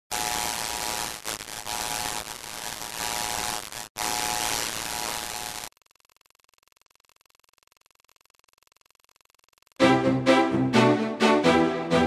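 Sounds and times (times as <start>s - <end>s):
static hiss: 0.1s - 5.8s.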